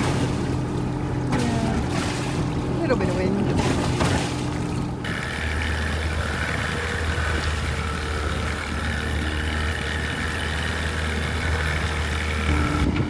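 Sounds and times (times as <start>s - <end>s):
engine idling with whine: 0.0s - 13.0s.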